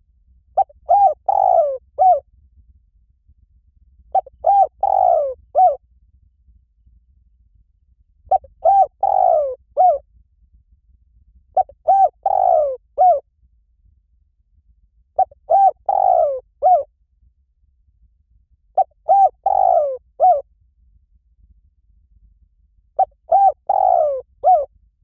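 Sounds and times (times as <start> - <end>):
dove cooing: 0.6 - 2.2, 4.1 - 5.8, 8.3 - 10.0, 11.6 - 13.2, 15.2 - 16.9, 18.8 - 20.4, 23.0 - 24.7.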